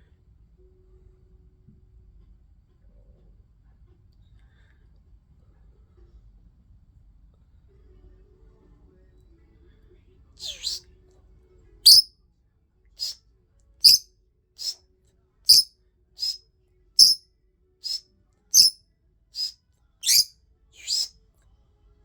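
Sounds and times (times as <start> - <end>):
lovebird chirping shrilly: 10.4 - 10.8, 11.9 - 12.1, 13.8 - 14.0, 15.5 - 16.4, 17.0 - 17.2, 18.6 - 18.8, 19.4 - 21.1.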